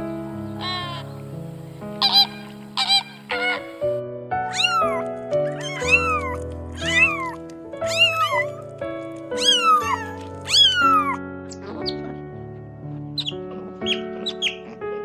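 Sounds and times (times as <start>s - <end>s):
background music: 0.0s - 15.0s
cat meowing: 0.6s - 1.1s, 4.5s - 8.6s, 9.4s - 12.0s.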